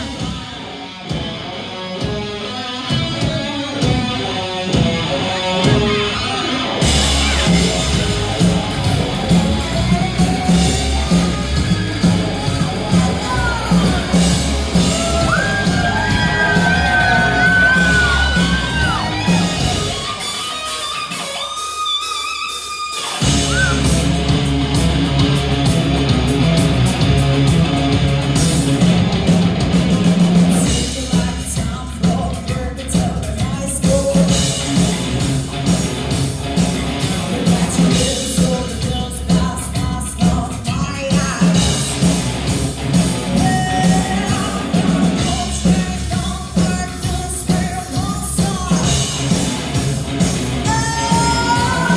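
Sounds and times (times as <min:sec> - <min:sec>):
live rock band playing: 0:00.0 - 0:51.9
person singing: 0:09.9 - 0:20.4, 0:30.0 - 0:35.1, 0:43.3 - 0:49.6, 0:50.6 - 0:51.9.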